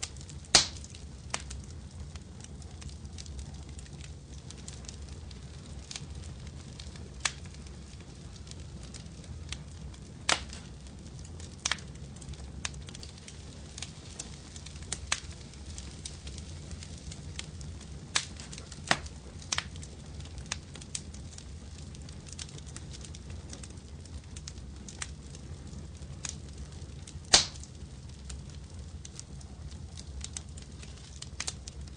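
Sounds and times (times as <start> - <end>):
low rumble of flames: 0.0 - 31.9
wood fire crackling and popping: 0.0 - 31.9.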